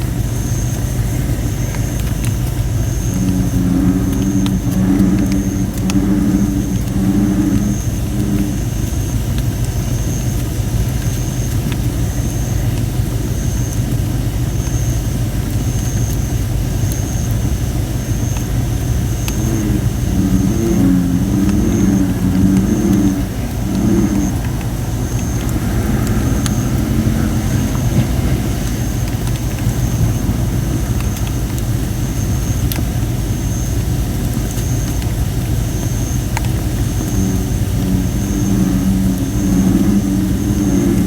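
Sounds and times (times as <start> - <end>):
low fire rumble: 0.0 - 41.0
wood fire crackling and popping: 0.0 - 41.0
bullfrog calling: 18.4 - 32.7.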